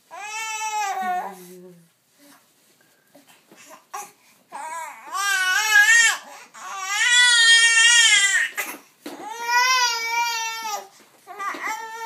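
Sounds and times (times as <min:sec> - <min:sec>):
baby crying: 0:00.1 - 0:01.3, 0:03.9 - 0:12.0.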